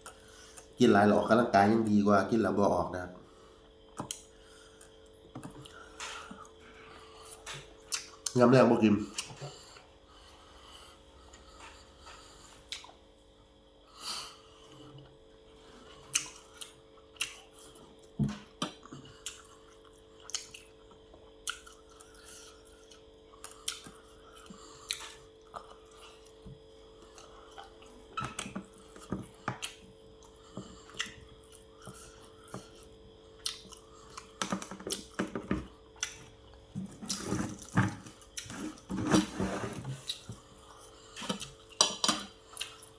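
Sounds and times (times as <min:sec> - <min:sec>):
faint steady hum: 0:00.0 - 0:42.9
chewing: 0:11.3 - 0:13.0, 0:15.8 - 0:35.2, 0:40.0 - 0:42.9.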